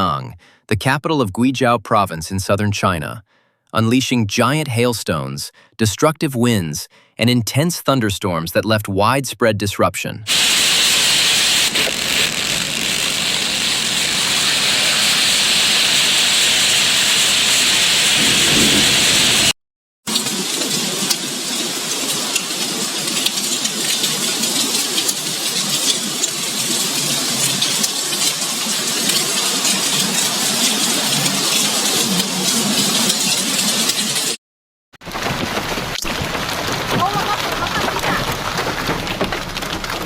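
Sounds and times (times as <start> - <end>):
hailstones clattering: 10.3 - 19.5, 20.1 - 34.4, 35.0 - 40.0
heavy rain hissing: 10.3 - 34.4, 35.1 - 40.0.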